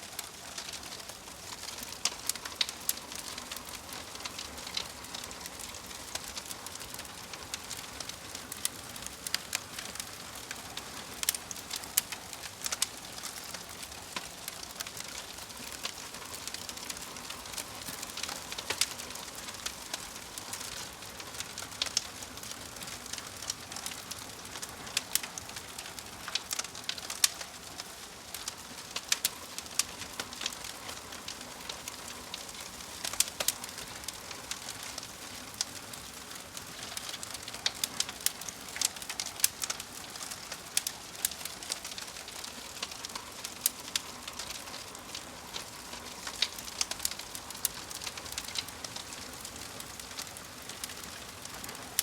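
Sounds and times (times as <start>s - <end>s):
wood fire crackling and popping: 0.0s - 52.0s.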